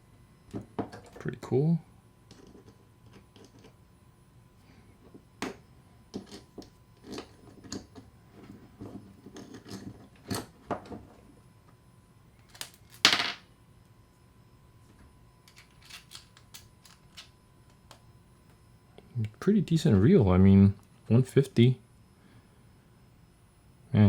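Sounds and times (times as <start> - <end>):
metal parts clattering: 15.5 - 17.3
metal parts clicking and tapping: 15.5 - 17.3.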